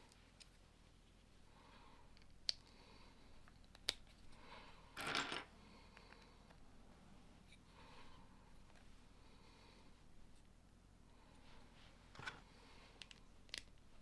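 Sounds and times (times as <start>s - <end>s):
plastic pieces clicking together: 13.0s - 13.8s.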